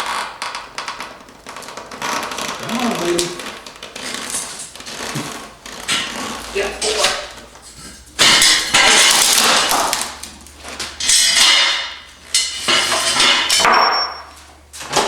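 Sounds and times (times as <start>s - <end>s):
wood and metal clattering: 0.9s - 15.0s
board cracking: 8.2s - 12.0s.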